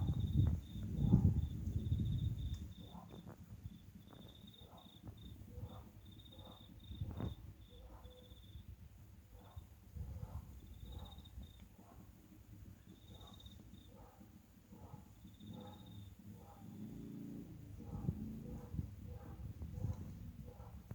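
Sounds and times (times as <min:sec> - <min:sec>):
crickets trilling: 0:00.0 - 0:08.8, 0:09.4 - 0:14.4, 0:15.0 - 0:17.4.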